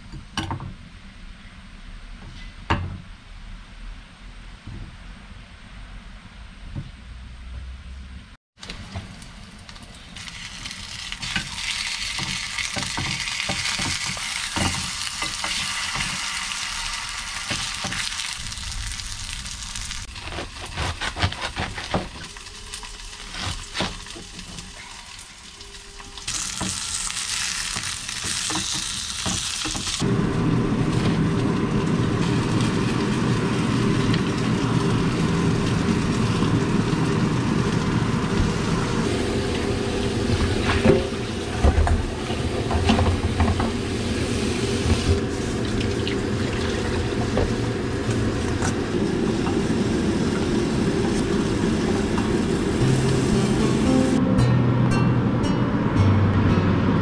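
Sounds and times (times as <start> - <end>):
food sizzling: 9.3 - 20.6, 21.7 - 54.2.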